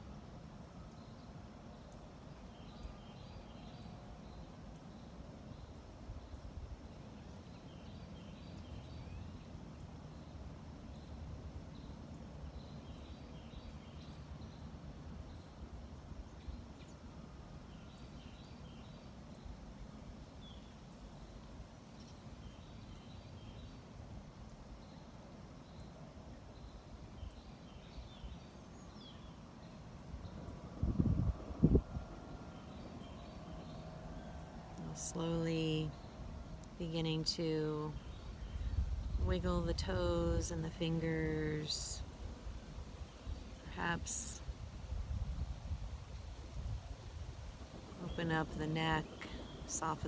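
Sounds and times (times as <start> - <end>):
faint low rumble: 22.0 - 50.0
birds chirping: 24.5 - 44.6, 46.2 - 50.0.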